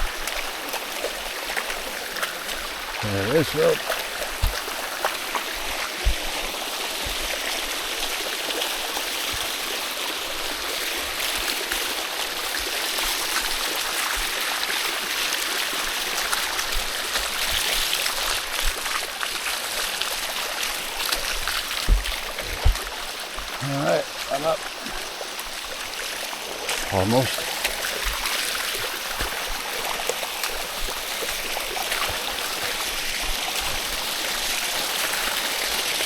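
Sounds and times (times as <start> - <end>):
water rushing over rock: 0.0 - 36.0
low thumps: 21.8 - 22.9.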